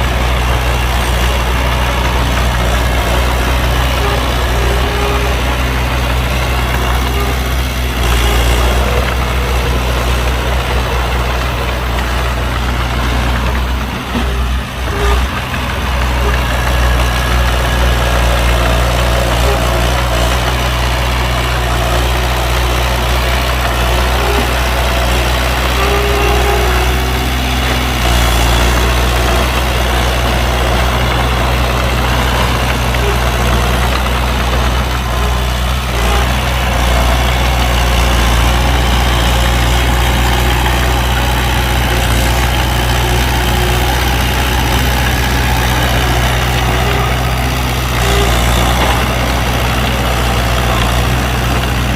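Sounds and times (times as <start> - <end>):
heavy diesel engine running: 0.0 - 51.9.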